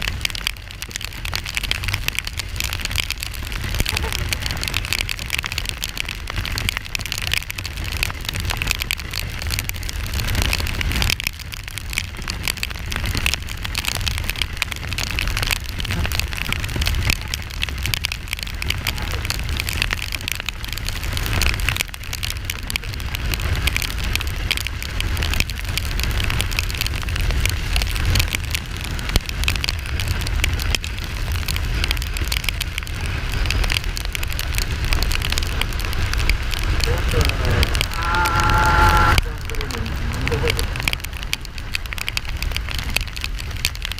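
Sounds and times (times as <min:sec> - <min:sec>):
rain pattering on microphone: 0:00.0 - 0:43.9
steady low rumble: 0:34.3 - 0:43.9.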